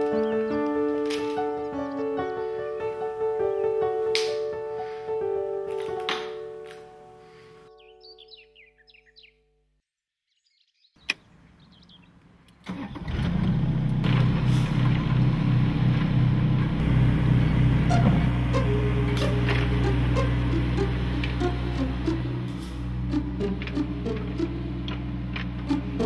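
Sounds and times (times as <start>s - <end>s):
machine humming and rumbling: 13.1s - 26.0s.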